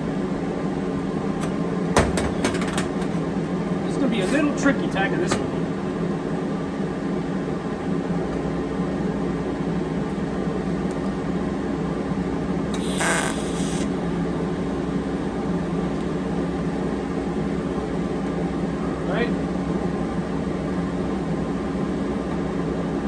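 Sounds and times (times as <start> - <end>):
steady low hum: 0.0 - 23.0
welding arc hiss: 12.7 - 22.3.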